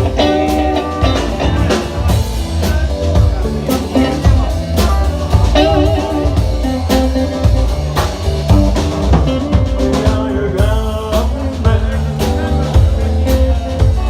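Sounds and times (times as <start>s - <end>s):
wavering lead melody: 0.0s - 10.8s
bass: 0.0s - 14.0s
drum kit: 0.0s - 14.0s.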